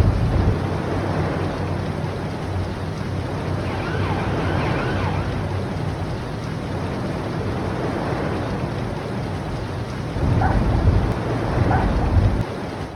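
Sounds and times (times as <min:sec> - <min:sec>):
deep rumble: 0:00.0 - 0:12.5
rushing noise: 0:03.1 - 0:08.8
faint wavering cries: 0:03.4 - 0:06.2.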